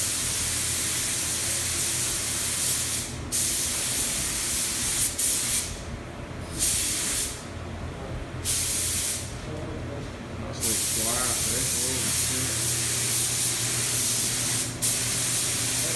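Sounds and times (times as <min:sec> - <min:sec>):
steady low hum: 0:00.0 - 0:15.9
spray paint hissing: 0:10.6 - 0:15.9.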